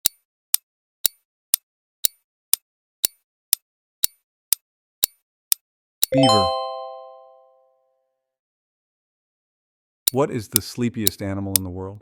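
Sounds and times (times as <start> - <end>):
clock ticking: 10.1 - 11.7.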